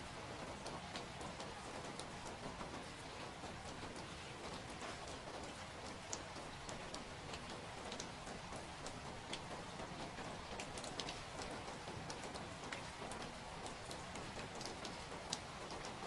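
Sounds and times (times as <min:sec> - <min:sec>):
rain pattering: 0:00.0 - 0:16.0.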